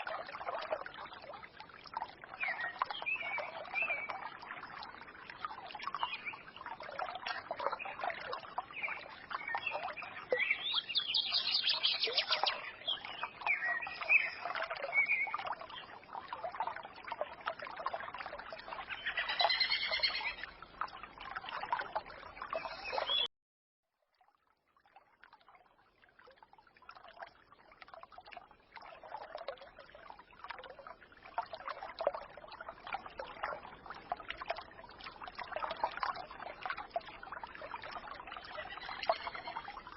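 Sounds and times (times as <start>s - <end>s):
stream trickling: 0.0s - 23.3s, 23.9s - 39.9s
songbirds chirping: 2.3s - 4.3s, 4.9s - 16.0s, 18.6s - 20.6s, 21.9s - 23.3s, 38.4s - 39.6s.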